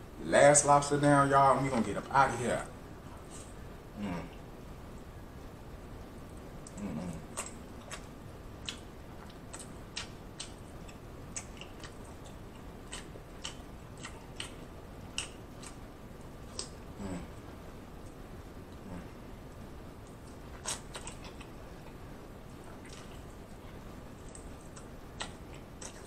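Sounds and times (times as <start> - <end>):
man chewing with mouth clicks: 6.6 - 26.0.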